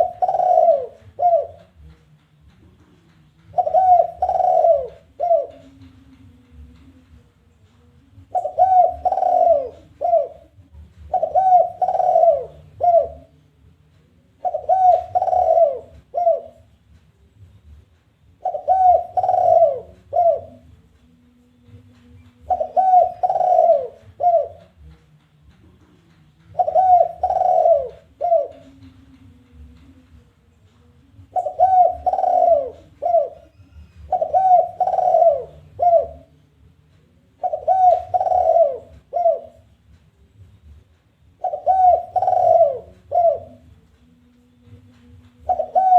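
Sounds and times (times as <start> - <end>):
dove cooing: 0.0 - 1.9, 3.5 - 6.2, 8.2 - 13.4, 14.3 - 16.8, 18.4 - 20.7, 22.4 - 24.9, 26.5 - 30.0, 31.2 - 36.4, 37.3 - 39.8, 41.4 - 43.8, 45.4 - 45.9
faint low hum: 0.0 - 45.9.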